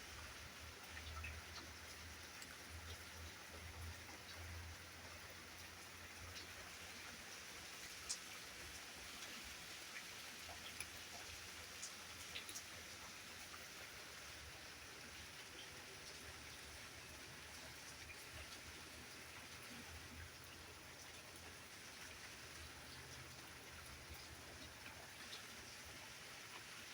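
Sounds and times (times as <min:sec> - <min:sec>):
light rain falling: 0:00.0 - 0:26.9
raindrops ticking: 0:00.6 - 0:06.7, 0:07.9 - 0:13.6.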